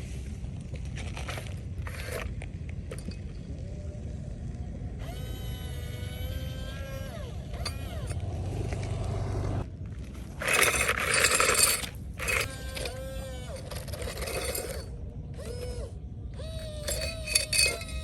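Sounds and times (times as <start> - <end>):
diesel machinery rumbling: 3.9 - 15.5.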